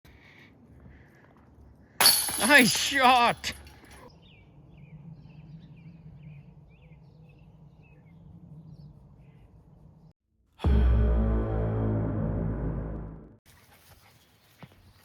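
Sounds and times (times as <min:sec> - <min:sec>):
bird chirping: 0:04.0 - 0:10.1.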